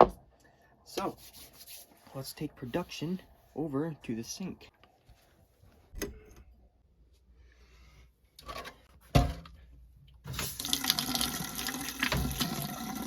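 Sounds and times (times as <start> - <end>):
tap water running into sink: 10.3 - 13.0.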